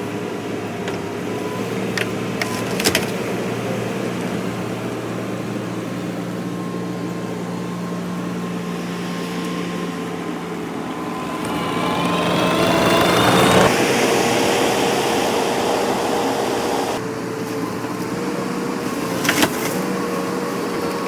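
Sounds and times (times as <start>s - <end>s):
engine running: 7.8s - 17.0s.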